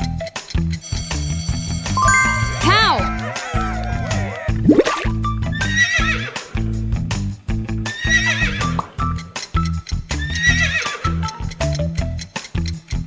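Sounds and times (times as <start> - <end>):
background music: 2.0 - 5.3.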